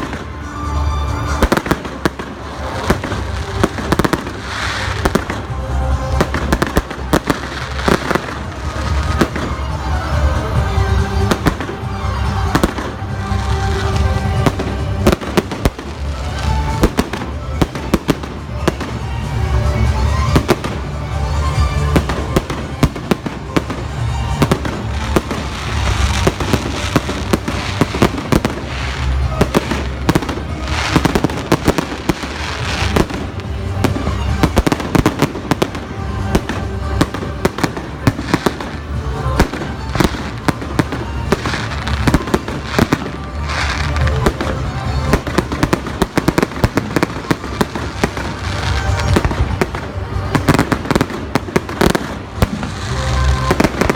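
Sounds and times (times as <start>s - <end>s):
background music: 0.0s - 53.9s
fireworks bursting: 0.0s - 53.9s.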